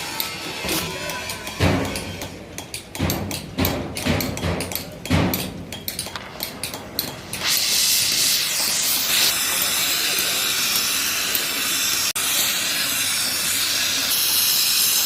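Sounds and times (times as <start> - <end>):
loud steady hiss: 7.4 - 15.0.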